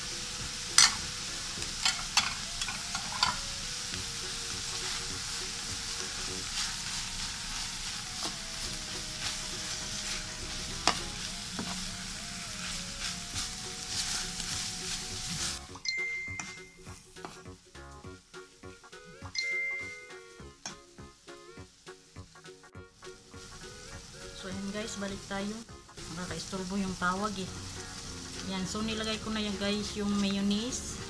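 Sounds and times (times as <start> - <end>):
food sizzling in a steel pan: 0.0 - 31.0
spoon scraping and clinking pan: 0.8 - 1.0, 1.8 - 3.4.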